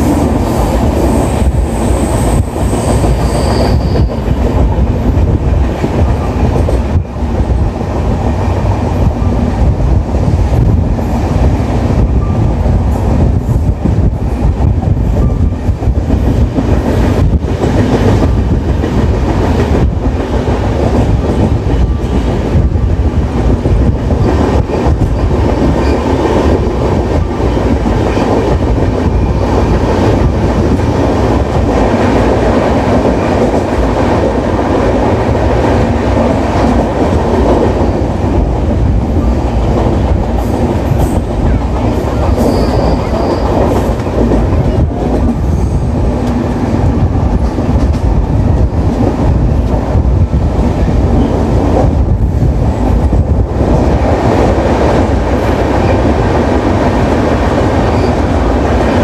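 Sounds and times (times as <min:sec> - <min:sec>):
train wheels rumbling on rails: 0:00.0 - 0:59.0
faint high squeal: 0:03.2 - 0:04.2, 0:42.4 - 0:43.5.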